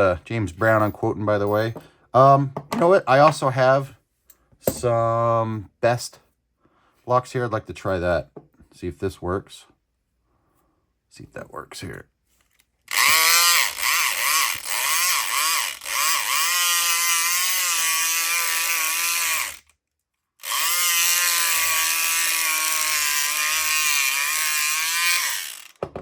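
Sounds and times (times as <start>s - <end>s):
electric pick gun motor buzzing: 12.9s - 19.7s, 20.4s - 25.8s.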